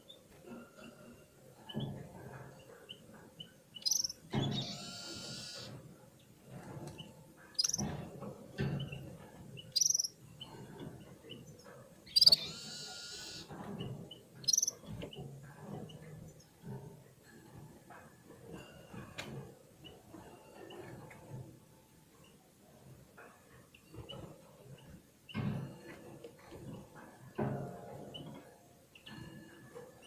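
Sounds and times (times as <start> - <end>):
birds chirping: 0.0 - 16.8
bird twittering: 3.8 - 5.6, 7.6 - 7.9, 9.7 - 10.2, 12.1 - 13.4, 14.4 - 14.8.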